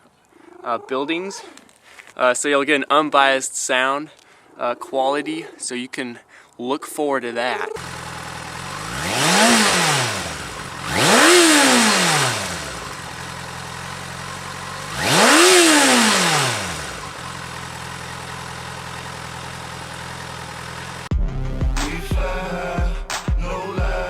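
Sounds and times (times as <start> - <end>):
motorcycle engine revving: 7.8 - 21.1.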